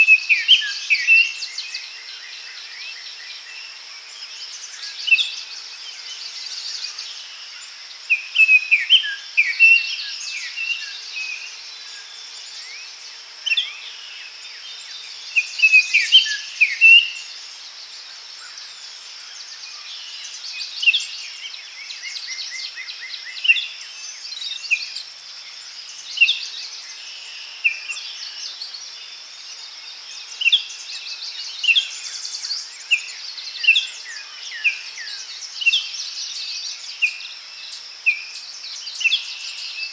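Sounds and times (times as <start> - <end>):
birds chirping and trilling: 0.0 - 39.9
insects hissing: 0.0 - 39.9.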